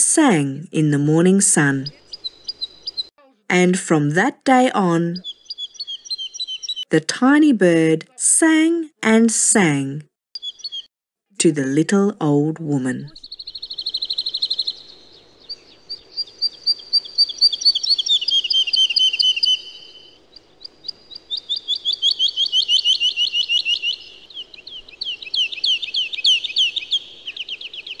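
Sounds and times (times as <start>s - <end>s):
songbird trilling: 1.6s - 3.1s, 5.0s - 6.9s, 10.4s - 10.9s, 13.1s - 28.0s.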